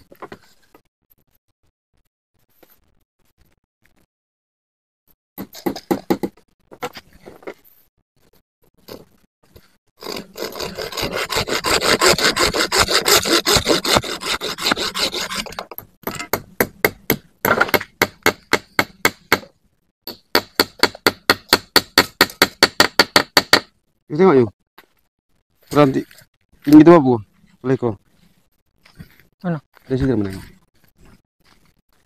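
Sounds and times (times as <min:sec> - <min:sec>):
hand saw cutting wood: 0:10.0 - 0:15.7.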